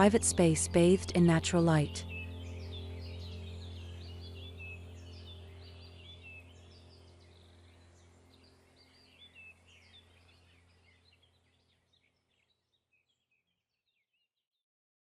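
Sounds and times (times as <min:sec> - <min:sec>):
steady low hum: 0:00.0 - 0:11.9
birds chirping: 0:00.0 - 0:13.5.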